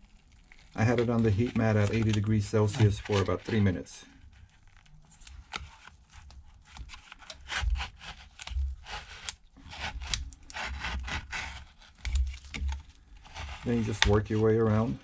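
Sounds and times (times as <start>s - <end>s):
pry tool scraping: 0.8s - 3.8s, 6.7s - 14.2s.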